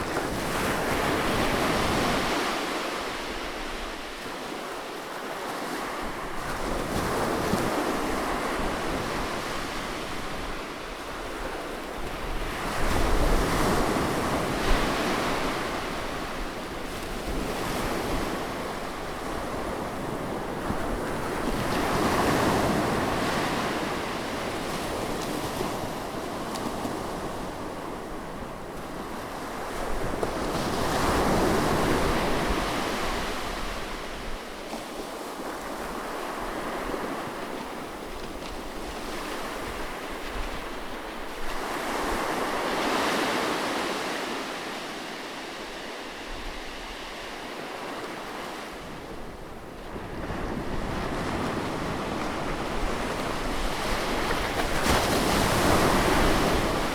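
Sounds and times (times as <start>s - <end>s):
sea waves washing onto shore: 29.5s - 56.9s.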